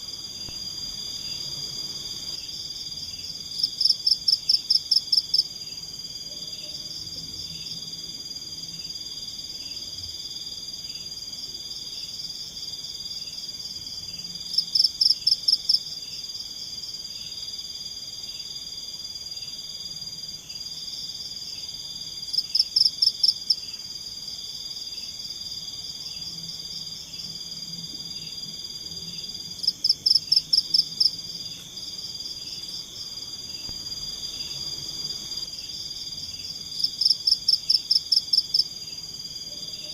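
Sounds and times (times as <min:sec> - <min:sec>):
insects fast pulsed calls: 0:00.0 - 0:05.9, 0:22.3 - 0:39.9
insects high-pitched trill: 0:00.0 - 0:39.9
soft insect chirp: 0:00.0 - 0:39.9.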